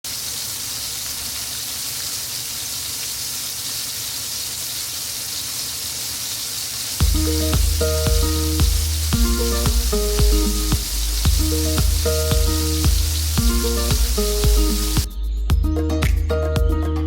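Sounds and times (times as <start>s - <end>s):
fish sizzling in hot oil: 0.0s - 15.1s
background music: 7.0s - 17.0s.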